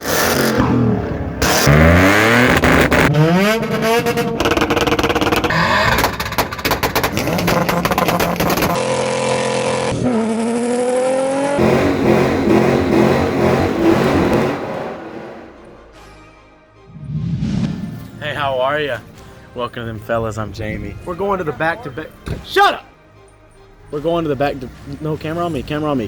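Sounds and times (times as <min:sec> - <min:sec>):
exhaust popping: 0:00.0 - 0:16.1
car engines revving: 0:00.0 - 0:16.2.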